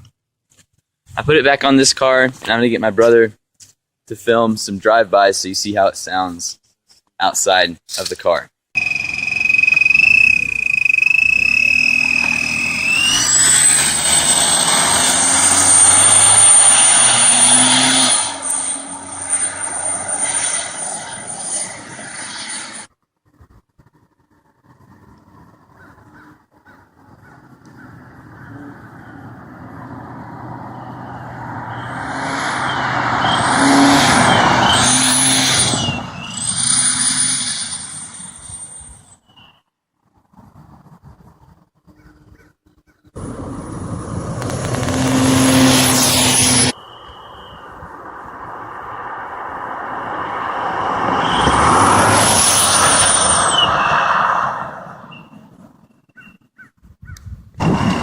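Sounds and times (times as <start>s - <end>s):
high thin exhaust whistle: 8.8s - 18.8s
car driving past: 8.8s - 22.9s, 27.5s - 37.4s, 43.2s - 55.2s
high exhaust whistle: 8.8s - 22.9s, 30.7s - 39.0s, 44.4s - 48.0s, 51.0s - 54.0s.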